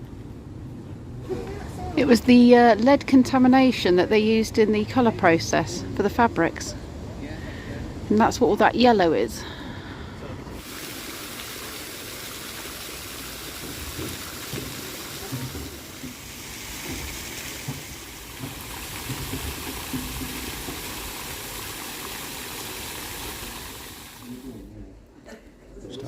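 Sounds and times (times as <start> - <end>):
rush of flowing water: 10.6 - 24.6.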